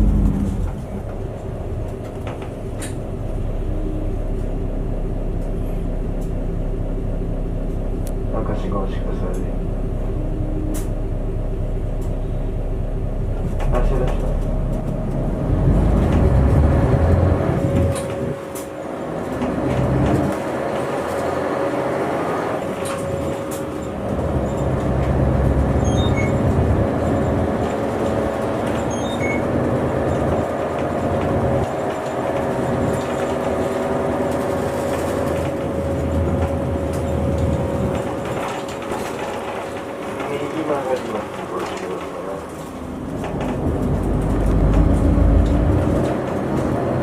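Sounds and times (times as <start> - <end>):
steady whine: 0.0 - 19.4
bus engine running: 0.0 - 47.0
road rumble: 0.0 - 47.0.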